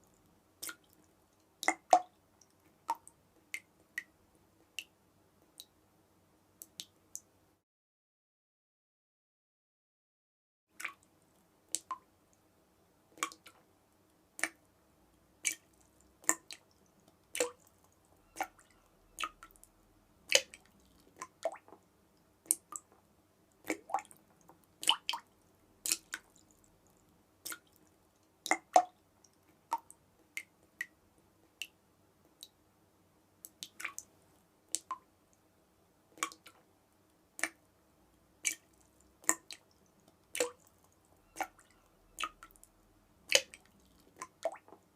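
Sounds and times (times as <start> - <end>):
water drops plinking: 18.2 - 19.4.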